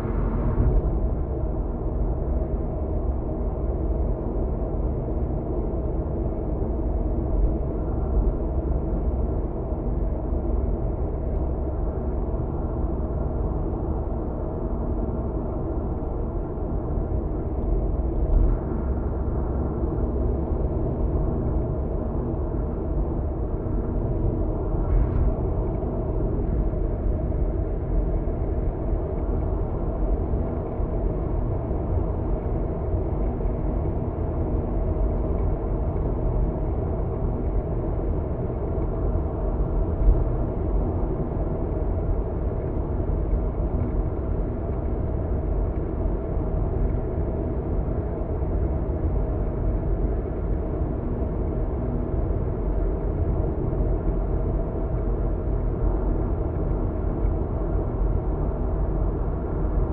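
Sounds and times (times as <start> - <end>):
car interior road rumble: 0.0 - 3.8.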